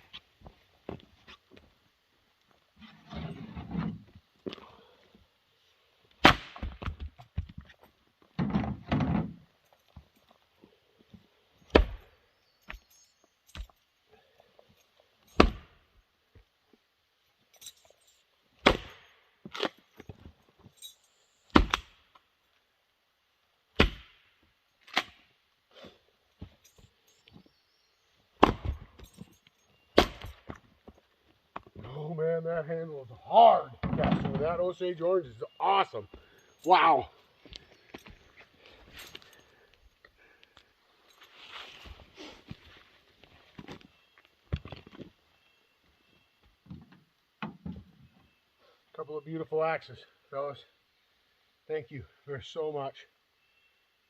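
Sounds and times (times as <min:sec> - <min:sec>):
axe splitting firewood: 0:06.2 - 0:07.6, 0:11.7 - 0:12.1, 0:15.4 - 0:15.8, 0:18.6 - 0:19.8, 0:21.5 - 0:22.0, 0:23.8 - 0:25.3, 0:28.4 - 0:29.0, 0:30.0 - 0:30.6.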